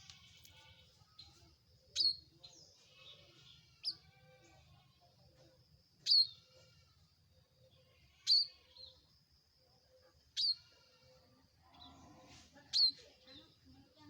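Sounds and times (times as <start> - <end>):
bird shrill chirping call: 6.1 - 6.4, 8.2 - 8.9, 10.4 - 10.6.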